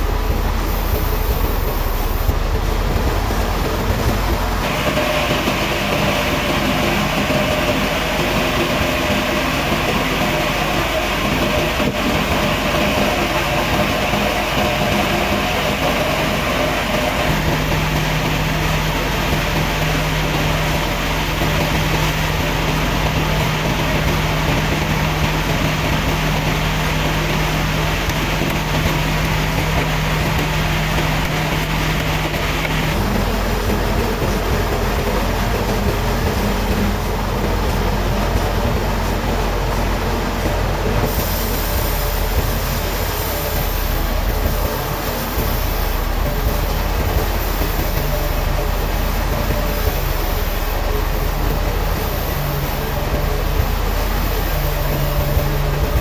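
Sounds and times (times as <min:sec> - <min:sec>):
sawmill machinery droning: 0:00.0 - 0:56.0.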